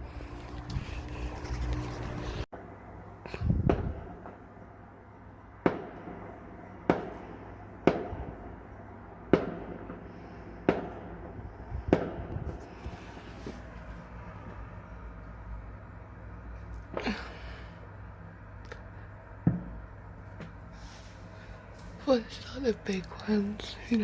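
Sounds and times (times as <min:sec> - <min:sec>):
fireworks bangs: 0:05.6 - 0:13.6.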